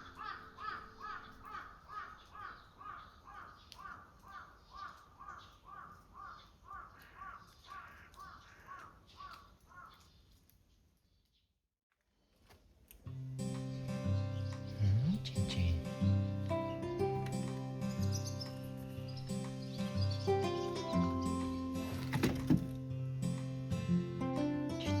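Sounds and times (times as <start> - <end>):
faint background music: 0.0 - 2.5, 13.1 - 25.0
bird calling: 0.0 - 10.4, 13.8 - 22.8.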